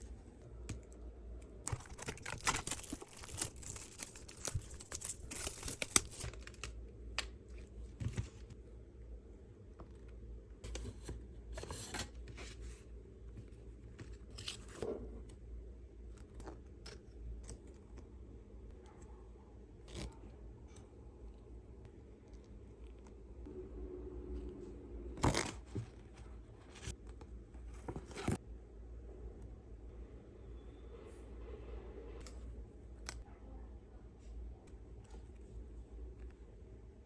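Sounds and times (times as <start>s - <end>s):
low steady hum: 0.0s - 37.0s
rustling and crinkling: 1.6s - 6.7s.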